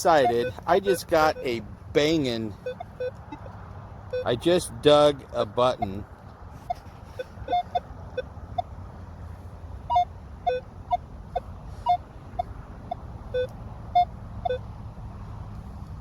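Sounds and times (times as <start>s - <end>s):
metal detector beeps: 0.0s - 4.4s, 6.7s - 7.8s, 9.9s - 10.6s, 12.9s - 14.6s.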